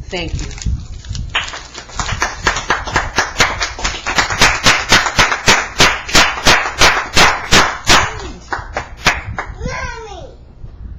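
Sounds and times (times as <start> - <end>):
hand clapping applause: 1.3 - 9.5.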